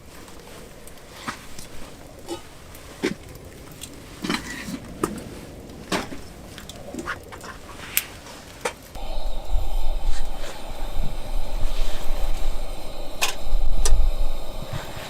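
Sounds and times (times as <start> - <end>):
campfire crackling and popping: 0.0 - 15.0
rushing noise with low rumble: 9.0 - 15.0.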